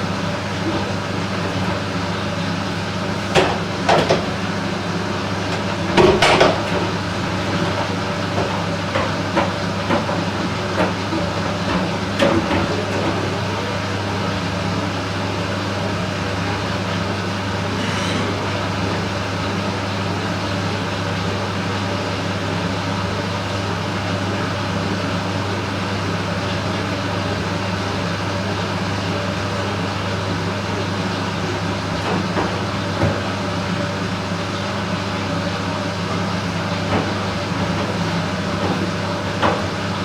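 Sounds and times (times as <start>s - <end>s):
washing machine drum drone: 0.0s - 40.0s
washing machine knocks: 3.2s - 4.6s, 5.5s - 13.2s, 36.6s - 40.0s.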